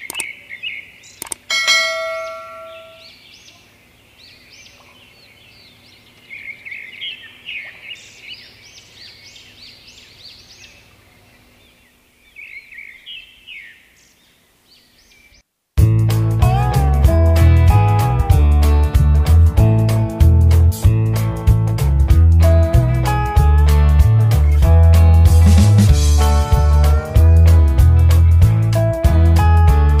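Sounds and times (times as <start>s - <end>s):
birds chirping and singing: 0.0s - 15.4s
bright chime ringing: 1.5s - 3.1s.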